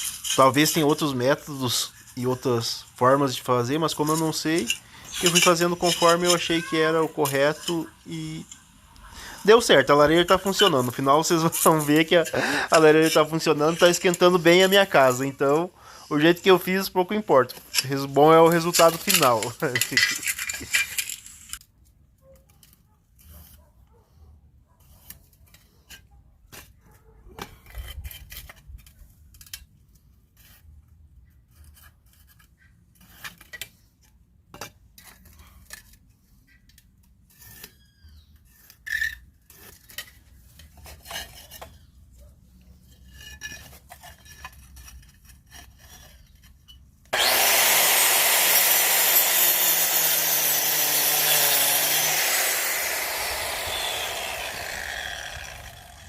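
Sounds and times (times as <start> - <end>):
power cutter grinding brick: 3.8 - 8.0, 9.3 - 15.6, 16.2 - 21.1, 47.1 - 56.0
taps and scrapes of bricks: 24.8 - 42.0, 42.6 - 47.2.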